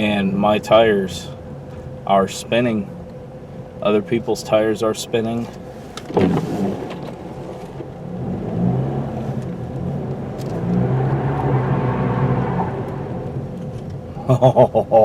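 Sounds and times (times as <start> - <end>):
car engine under throttle: 0.0 - 14.8
tires spinning on ice: 5.8 - 14.0.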